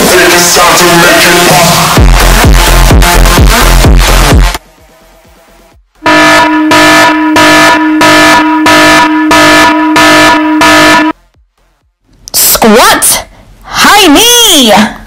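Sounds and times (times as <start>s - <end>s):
electronic timer buzzer pulses: 6.0s - 11.2s.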